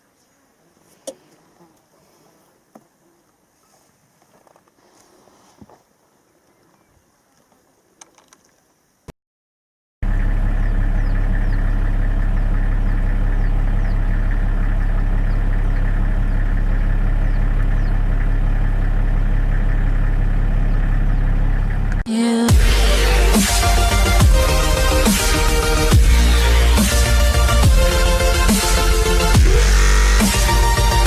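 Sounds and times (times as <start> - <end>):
engine idling: 10.0 - 31.0.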